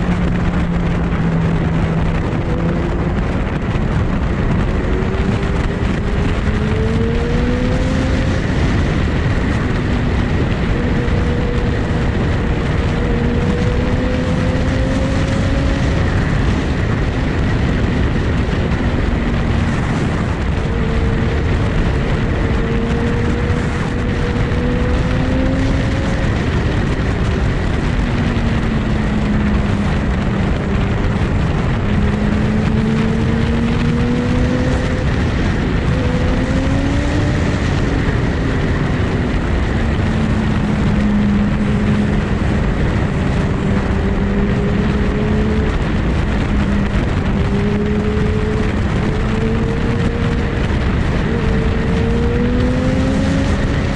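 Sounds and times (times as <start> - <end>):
heavy wind rush: 0.0 - 53.9
motorcycle engine revving: 0.0 - 53.9.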